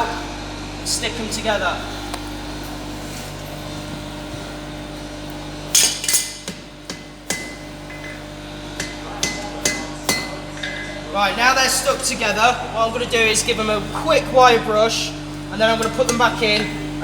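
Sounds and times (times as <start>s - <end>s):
steady hum: 0.0s - 17.0s
hammer striking steel on anvil: 5.7s - 8.2s, 8.8s - 11.0s.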